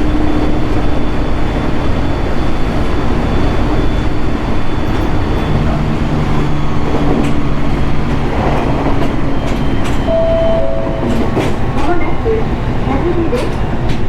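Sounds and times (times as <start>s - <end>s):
electric train running: 0.8s - 14.0s
higher motor tone: 10.1s - 11.6s.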